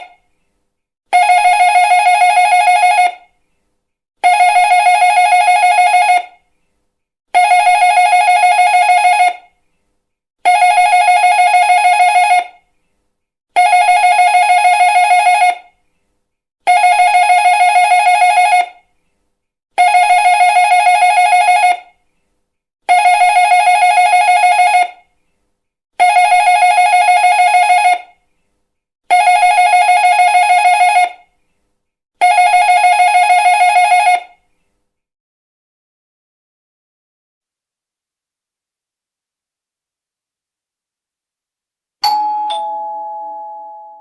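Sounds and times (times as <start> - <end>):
electric doorbell ringing: 42.0 - 44.0.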